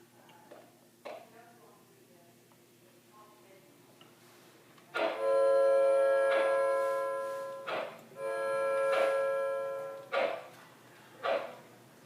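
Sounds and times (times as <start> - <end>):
steam whistle blasts: 5.2 - 10.0.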